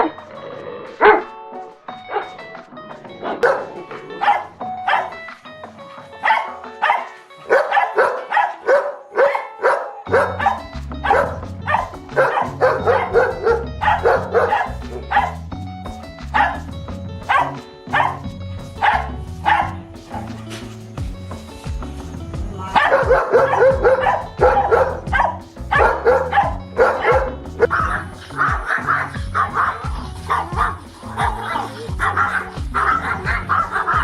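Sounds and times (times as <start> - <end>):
background music: 0.0 - 34.0
dog barking: 1.0 - 1.3, 2.1 - 2.3, 3.3 - 5.3, 5.9 - 15.4, 16.4 - 16.6, 17.3 - 18.2, 18.8 - 20.6, 22.8 - 34.0
low bass line: 10.1 - 34.0.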